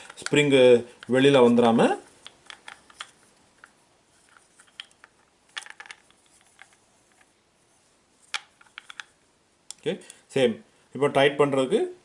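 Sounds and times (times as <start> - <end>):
small metal parts clicking: 2.2 - 6.8.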